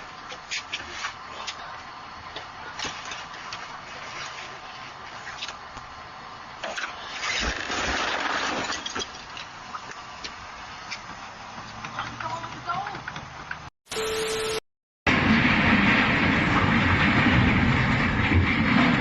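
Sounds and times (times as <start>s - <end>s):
car road rumble: 8.6s - 13.7s
loud rush of noise: 13.9s - 19.0s.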